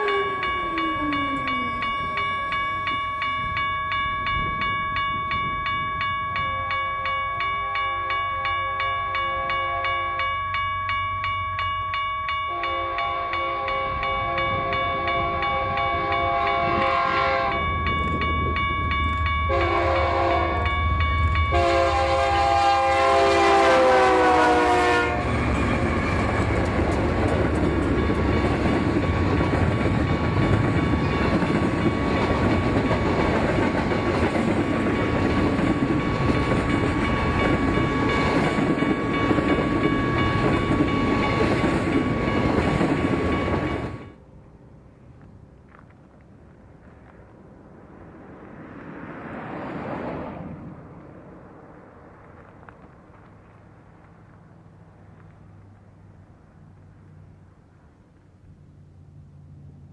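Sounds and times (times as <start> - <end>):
passing train rumble: 0.0 - 59.9
locomotive air horn blasts: 12.5 - 17.7, 19.5 - 20.7, 21.5 - 25.7.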